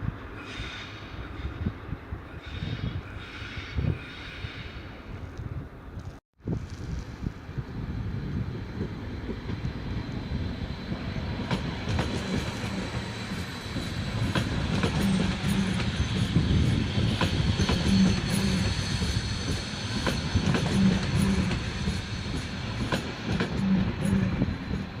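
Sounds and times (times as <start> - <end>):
train rumbling past: 6.5 - 25.0.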